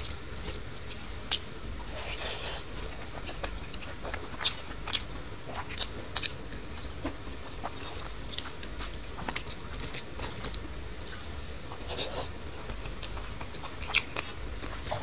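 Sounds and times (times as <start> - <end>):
close-miked chewing: 0.0 - 15.0.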